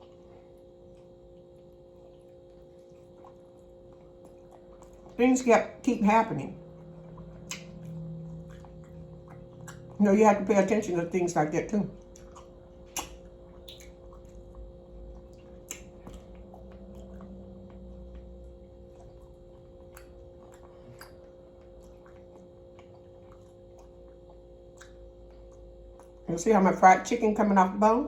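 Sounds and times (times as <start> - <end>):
faint chewing: 0.0 - 5.3, 6.6 - 10.0, 12.0 - 26.3
steady low hum: 0.0 - 28.0
mouth clicks: 12.9 - 14.0.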